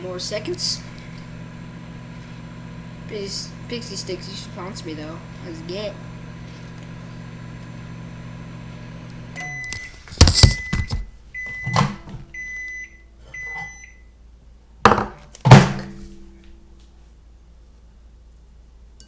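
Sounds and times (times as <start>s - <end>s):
microwave oven humming: 0.0s - 14.2s
microwave high beeps: 9.3s - 14.2s
loud clunks: 14.9s - 16.4s.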